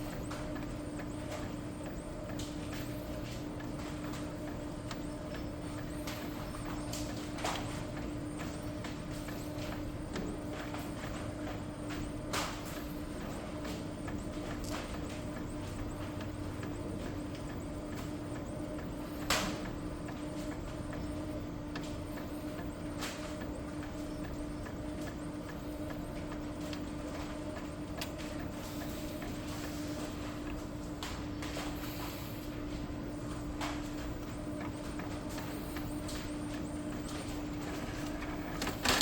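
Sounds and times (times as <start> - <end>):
printer motor hum: 0.0 - 39.0
printer carriage shuttling: 37.1 - 39.0
printer sharp clicks: 37.1 - 39.0.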